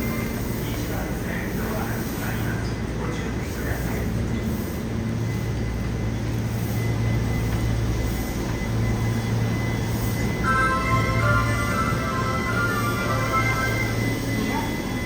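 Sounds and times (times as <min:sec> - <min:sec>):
train wheels and motors rumbling: 0:00.0 - 0:15.0
faint high whine: 0:08.4 - 0:15.0.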